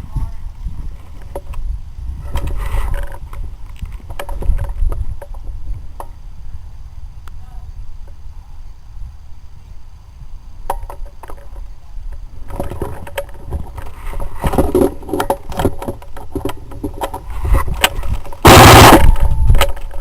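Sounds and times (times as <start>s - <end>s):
gear clicks and bumps: 0.0s - 6.2s, 10.7s - 20.0s
wind rush on microphone: 0.0s - 20.0s.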